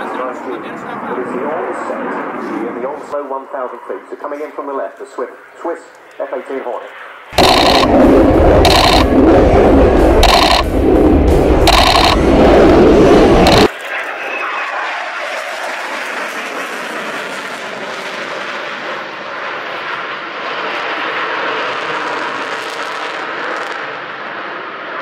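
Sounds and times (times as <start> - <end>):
fighter jet engines rushing: 7.1 - 25.0.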